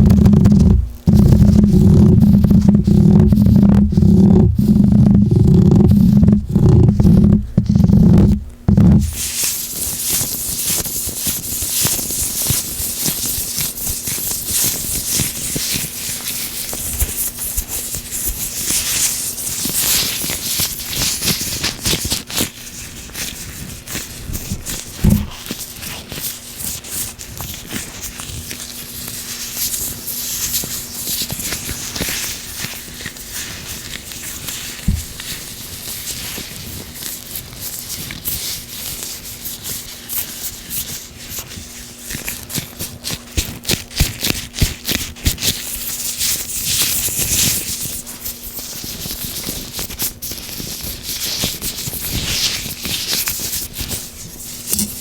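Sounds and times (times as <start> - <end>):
soft thumps: 0.0 - 9.3, 25.0 - 25.4, 34.9 - 35.2
oily gloved hands rubbing: 0.0 - 12.0, 24.7 - 25.6.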